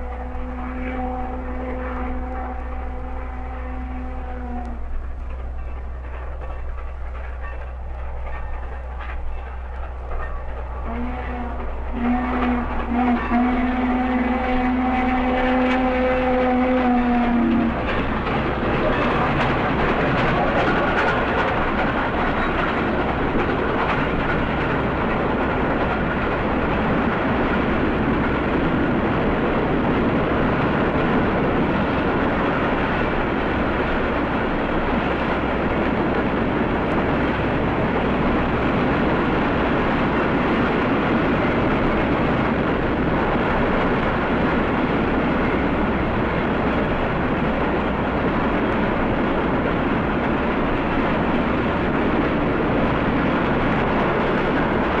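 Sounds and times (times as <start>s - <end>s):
steam train running: 0.0s - 55.0s.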